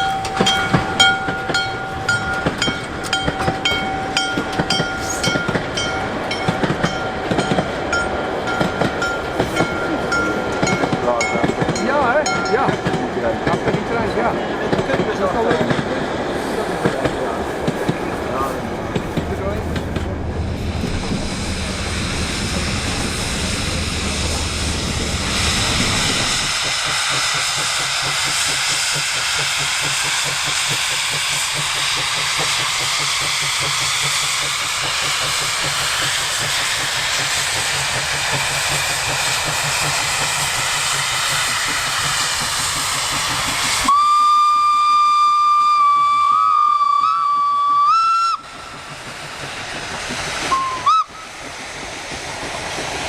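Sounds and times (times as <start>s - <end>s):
steam hissing: 0.0s - 53.0s
steam whistle: 43.8s - 48.4s, 50.5s - 51.3s.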